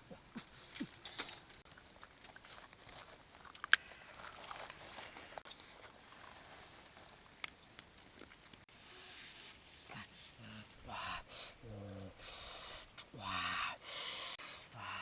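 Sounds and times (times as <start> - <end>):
chewing and crunching: 0.0 - 8.7, 10.0 - 13.1.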